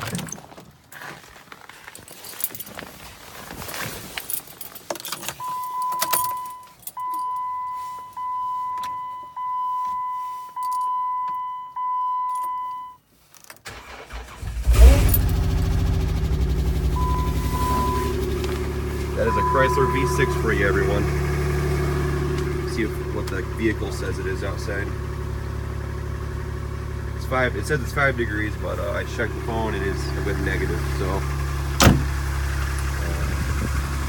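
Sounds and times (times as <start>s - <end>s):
keys jangling: 1.9s - 2.8s, 4.1s - 7.3s
dashboard warning chime: 5.4s - 13.0s, 16.8s - 24.7s
car engine cranking and starting: 13.3s - 34.0s
car engine idling: 13.6s - 34.0s.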